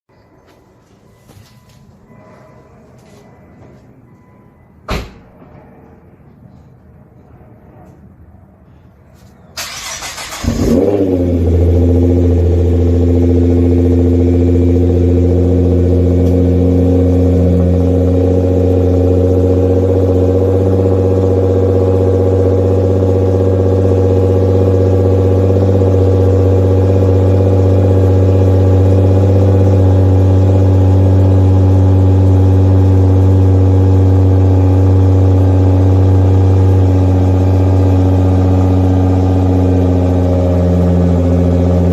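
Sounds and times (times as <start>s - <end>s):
car engine starting and idling: 9.5s - 41.9s.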